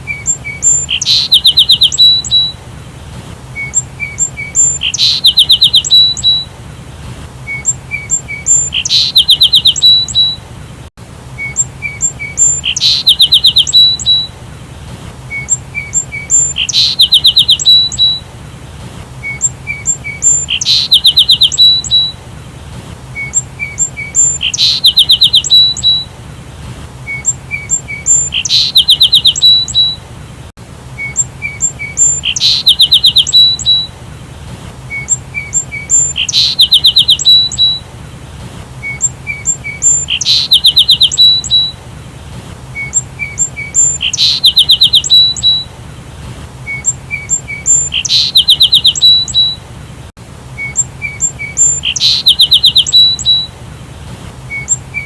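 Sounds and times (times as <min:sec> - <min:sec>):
sparrow chirping: 0:00.0 - 0:02.6, 0:03.6 - 0:06.5, 0:07.5 - 0:10.4, 0:11.4 - 0:14.3, 0:15.3 - 0:18.2, 0:19.2 - 0:22.2, 0:23.2 - 0:26.1, 0:27.1 - 0:30.0, 0:31.0 - 0:33.9, 0:34.9 - 0:37.8, 0:38.8 - 0:41.8, 0:42.8 - 0:45.7, 0:46.6 - 0:49.6, 0:50.6 - 0:53.5, 0:54.5 - 0:55.0.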